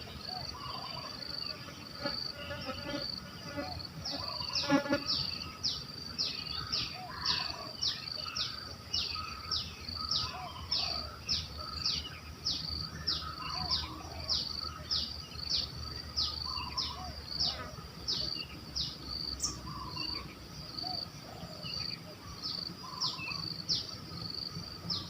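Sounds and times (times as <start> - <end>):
faint bird calls: 0.0 - 1.3, 3.5 - 5.5, 6.3 - 12.2, 12.9 - 15.1, 16.2 - 18.6, 19.4 - 23.6
insect chirping: 0.0 - 25.0.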